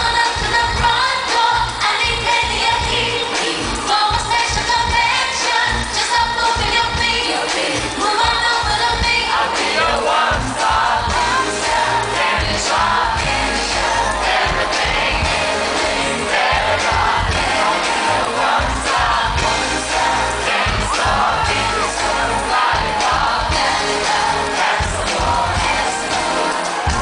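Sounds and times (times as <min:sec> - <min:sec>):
woman singing: 0:00.0 - 0:18.0
electronic beat: 0:00.0 - 0:27.0.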